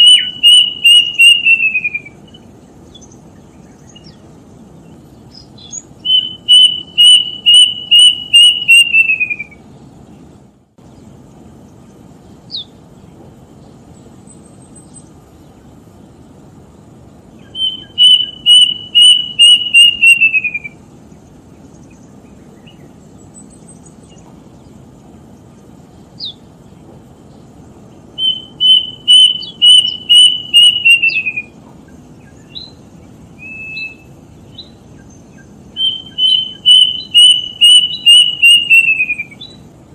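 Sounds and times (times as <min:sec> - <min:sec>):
bird singing whistled notes: 0:00.0 - 0:09.8, 0:12.5 - 0:12.8, 0:17.4 - 0:24.8, 0:25.4 - 0:26.5, 0:28.1 - 0:39.7.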